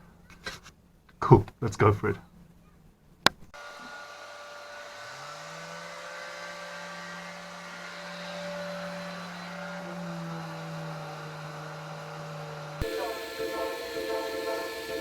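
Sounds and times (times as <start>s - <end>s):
electric power sander running: 3.6s - 15.0s.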